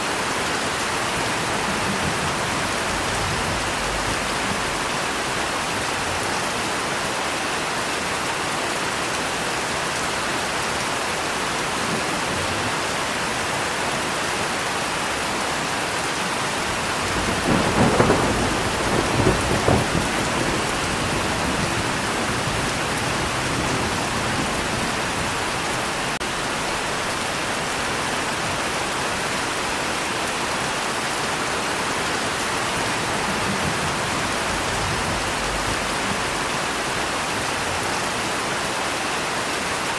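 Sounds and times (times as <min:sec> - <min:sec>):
heavy rain: 0:00.0 - 0:39.9
thunder rumbling: 0:00.7 - 0:06.2, 0:16.5 - 0:27.1, 0:32.3 - 0:37.2.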